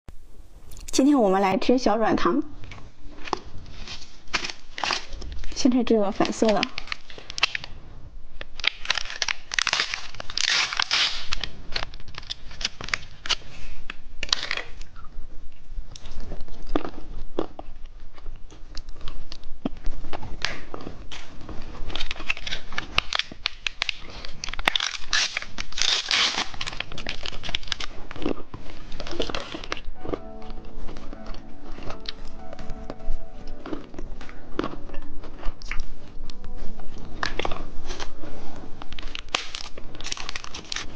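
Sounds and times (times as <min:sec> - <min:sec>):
plastic wrapper crinkling: 0:02.6 - 0:07.8, 0:08.4 - 0:14.9, 0:18.7 - 0:32.5, 0:33.8 - 0:40.9.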